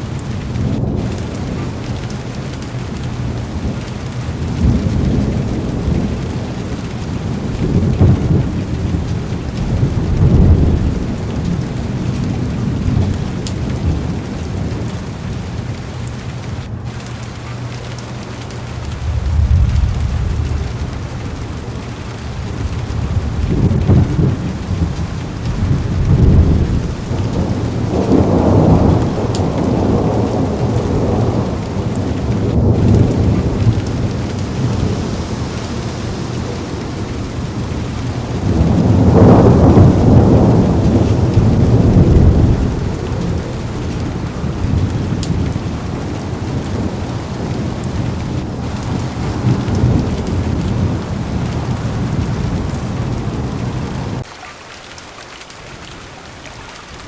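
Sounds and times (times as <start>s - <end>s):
rolling thunder: 0.0s - 54.3s
heavy rain on car window: 0.0s - 57.0s.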